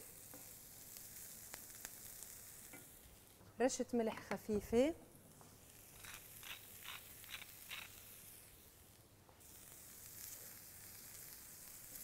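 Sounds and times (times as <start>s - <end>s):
vegetables sizzling in pan: 0.0s - 3.4s, 4.5s - 12.0s
salt shaker shakes: 5.9s - 8.4s.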